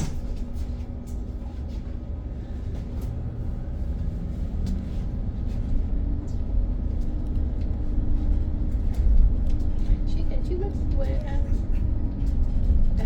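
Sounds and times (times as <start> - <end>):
bus road rumble: 0.0 - 13.0.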